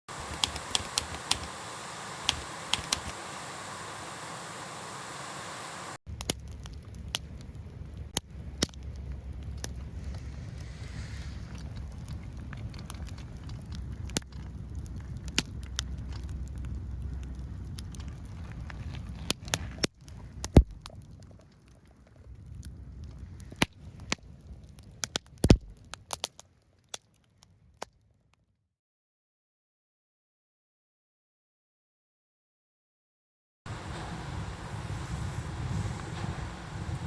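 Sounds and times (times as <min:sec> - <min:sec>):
firewood crackling and popping: 0:00.1 - 0:28.4
low rumble: 0:06.1 - 0:21.2, 0:33.7 - 0:37.0.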